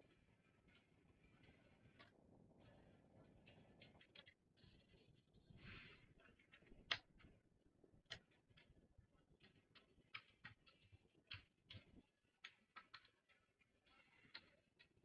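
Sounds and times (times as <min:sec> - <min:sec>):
small tools clicking and tapping: 0:09.4 - 0:15.0.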